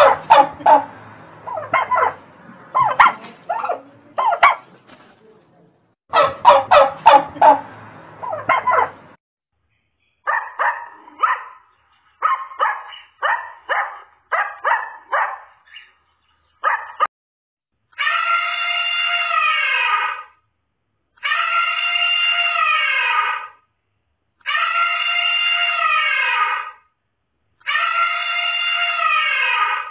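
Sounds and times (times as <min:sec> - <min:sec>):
turkey gobbling: 0:00.0 - 0:04.7, 0:06.1 - 0:09.0.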